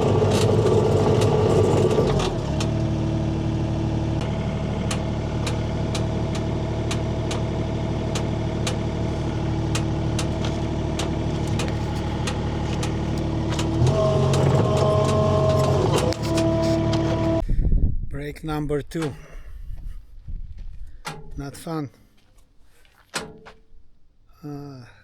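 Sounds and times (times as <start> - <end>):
skid steer engine running: 0.0 - 17.4
sharp clicks and knocks: 8.1 - 8.8, 9.7 - 17.2, 21.0 - 21.4, 23.1 - 23.7.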